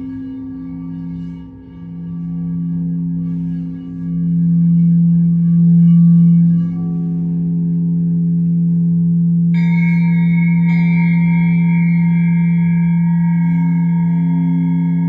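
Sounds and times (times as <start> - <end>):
deep ringing tone: 0.0 - 15.0
higher ringing strikes: 9.5 - 15.0.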